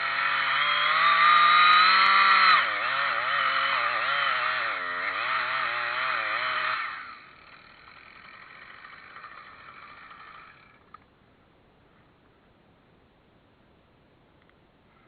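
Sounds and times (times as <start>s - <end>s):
chainsaw engine running hard: 0.0s - 11.0s
faint steady whine: 1.6s - 15.0s
click: 14.4s - 14.6s.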